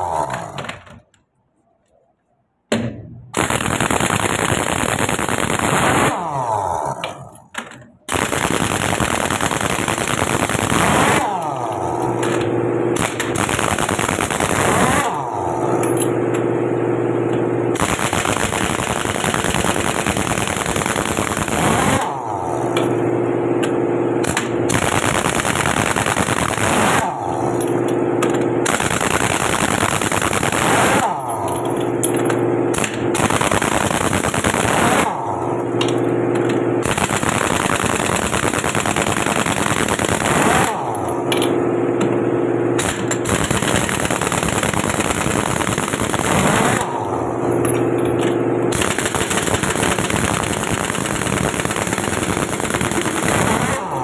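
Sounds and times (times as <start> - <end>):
impact wrench rattling: 10.4 - 13.6, 26.6 - 42.2, 42.8 - 53.7.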